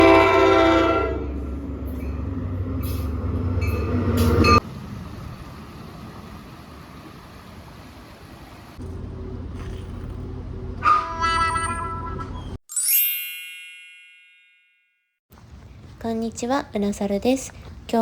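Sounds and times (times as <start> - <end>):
train horn: 0.0 - 1.7, 10.8 - 12.4
train rumbling past: 0.0 - 12.6.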